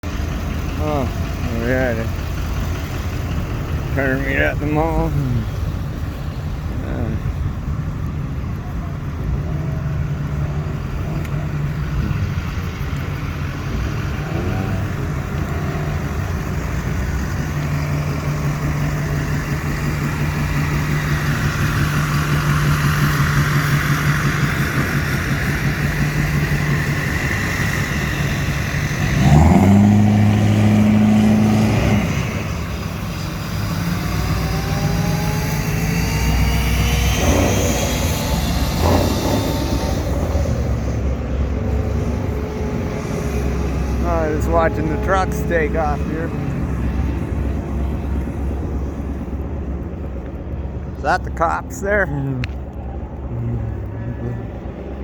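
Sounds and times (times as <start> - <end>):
car and truck engines running: 0.0 - 55.0
vehicles accelerating away: 0.0 - 55.0
engine revved hard: 28.8 - 32.7, 33.9 - 40.8.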